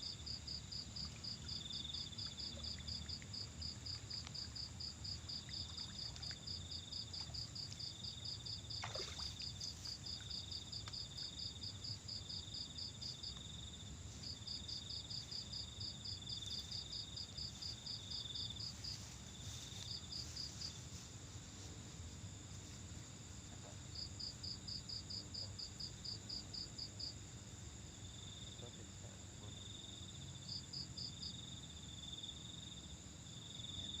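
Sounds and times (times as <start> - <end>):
rapid pulsed insect chirps: 0.0 - 23.1.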